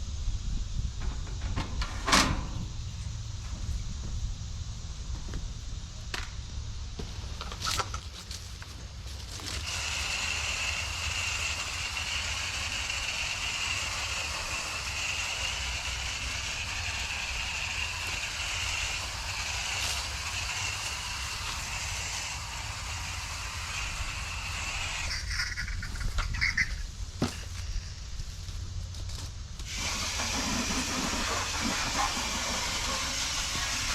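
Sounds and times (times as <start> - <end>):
spray nozzle hissing: 9.6 - 26.7, 29.7 - 33.9.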